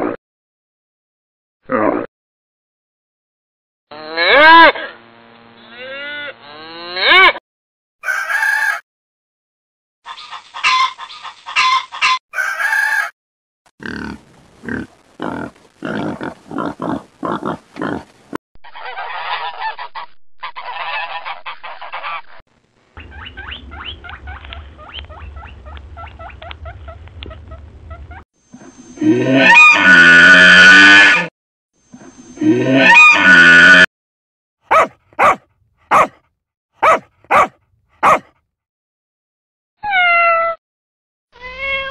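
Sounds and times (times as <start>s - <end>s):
honking animal calls: 34.7s - 36.1s, 36.8s - 38.2s
rapid grunting calls: 34.7s - 36.2s, 36.8s - 38.3s.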